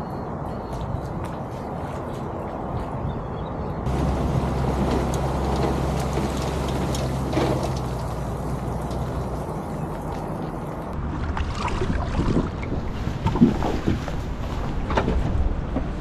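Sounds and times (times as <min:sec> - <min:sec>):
car engine humming: 0:03.9 - 0:11.3.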